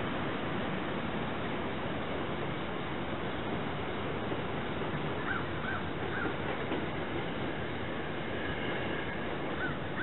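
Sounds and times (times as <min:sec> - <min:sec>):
electric train rumbling: 0:00.0 - 0:10.0
crow cawing: 0:05.2 - 0:06.4, 0:09.6 - 0:10.0.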